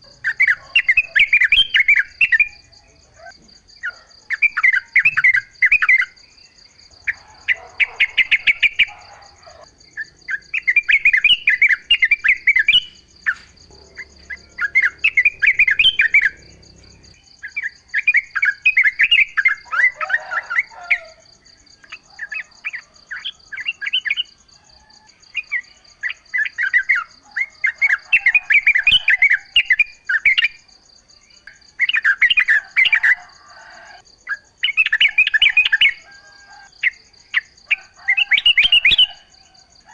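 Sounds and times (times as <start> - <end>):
bird singing chattering phrases: 10.0 - 19.3.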